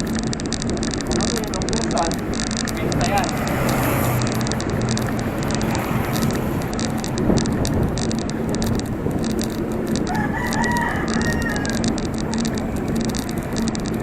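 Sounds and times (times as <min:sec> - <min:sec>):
road noise: 0:00.0 - 0:14.0
wind: 0:00.0 - 0:14.0
rooster crowing: 0:10.0 - 0:13.6.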